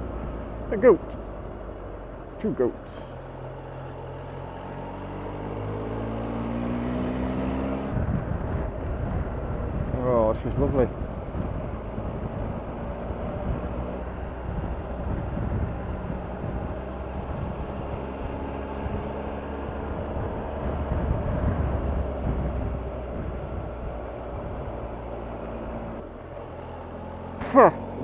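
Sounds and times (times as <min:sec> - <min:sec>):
wind noise: 0:07.9 - 0:25.1
motorcycle engine running: 0:07.9 - 0:28.0.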